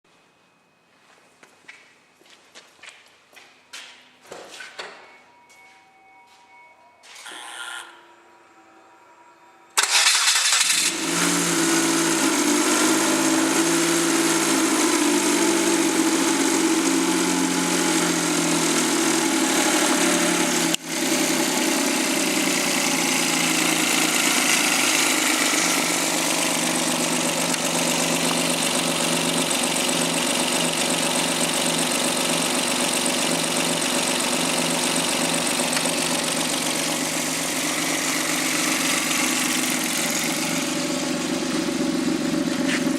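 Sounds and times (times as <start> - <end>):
car engine starting and idling: 9.7 - 42.9.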